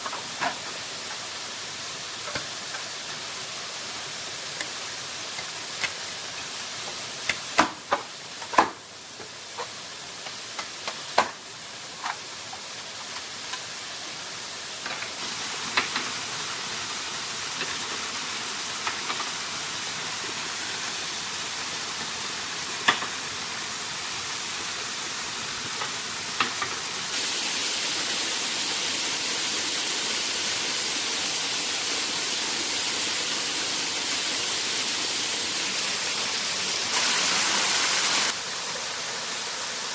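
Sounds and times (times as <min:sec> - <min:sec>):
waterfall rushing: 0:19.4 - 0:39.9.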